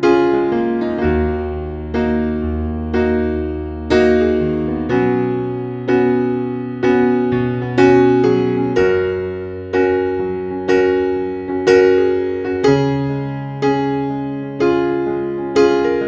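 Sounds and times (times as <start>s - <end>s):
electric piano chords: 0.0s - 16.0s.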